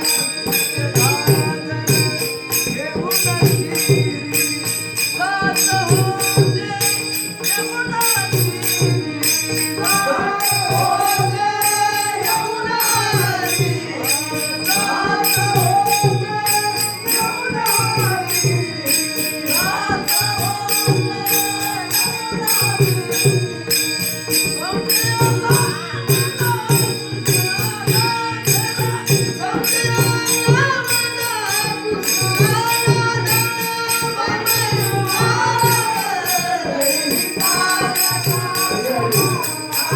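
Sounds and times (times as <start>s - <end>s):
hand cymbals: 0.0s - 39.9s
man singing: 0.0s - 39.9s.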